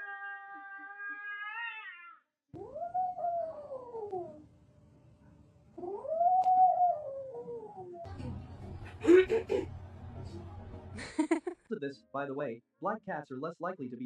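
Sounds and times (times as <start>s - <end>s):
cat yowling: 0.0s - 4.1s.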